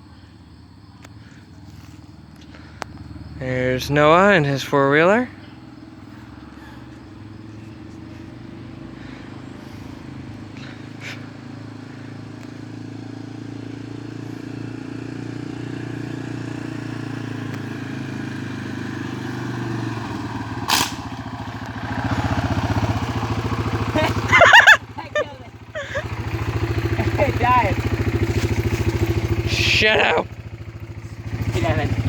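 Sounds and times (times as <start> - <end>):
atv engine running: 0.0 - 32.0
sharp crack: 20.2 - 22.1.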